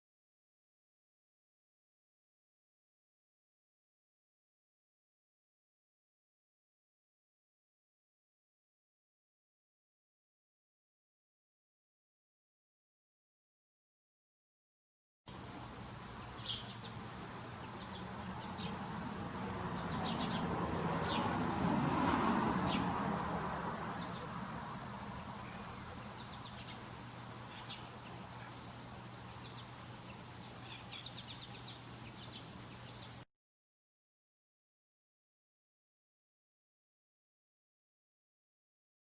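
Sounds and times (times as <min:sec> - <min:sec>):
insects trilling: 0:15.3 - 0:33.2.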